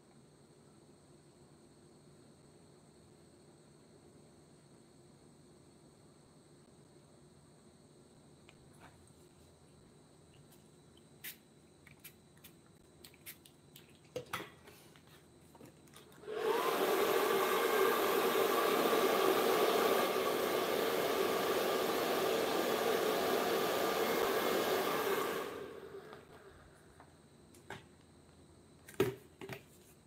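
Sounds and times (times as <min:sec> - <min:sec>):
small electric motor blowing: 0:16.2 - 0:26.5.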